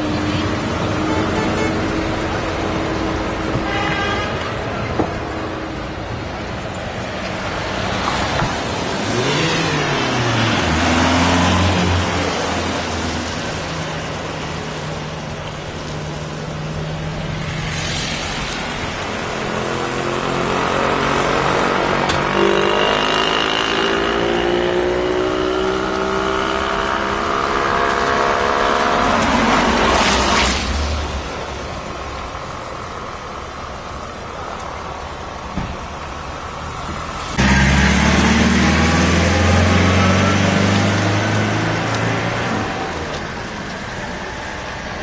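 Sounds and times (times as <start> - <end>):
tractor engines running: 26.8 - 45.0
tractor engine revving: 35.0 - 45.0.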